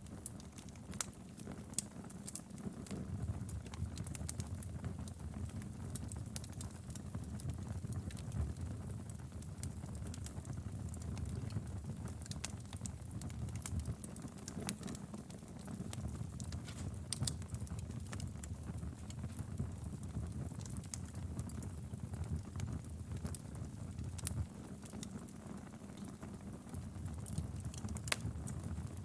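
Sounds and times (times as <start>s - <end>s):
fire rumbling: 0.1s - 29.0s.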